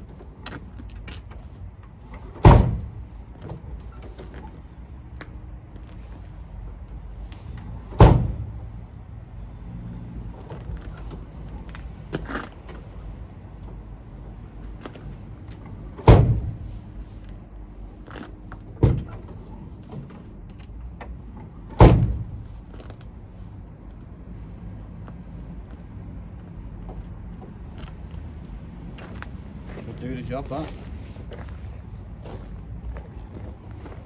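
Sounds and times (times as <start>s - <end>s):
heavy thumps on truck door: 2.4s - 3.6s, 7.6s - 8.7s, 16.0s - 16.9s, 18.8s - 20.2s, 21.7s - 22.9s.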